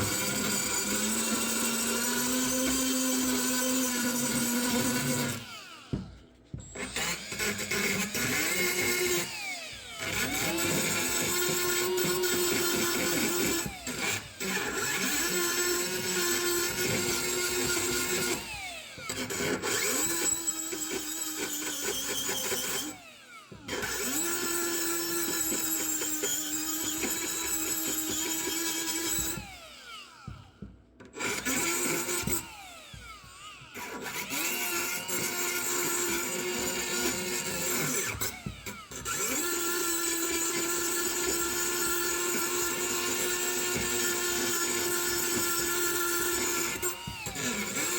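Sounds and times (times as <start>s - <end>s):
electric rotary power tool running: 0.0s - 47.9s.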